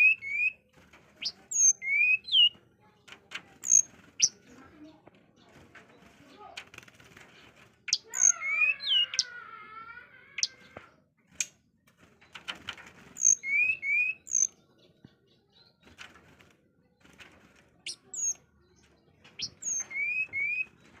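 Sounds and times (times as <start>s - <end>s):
songbird whistling: 1.2s - 2.5s, 13.2s - 14.5s, 19.4s - 20.7s.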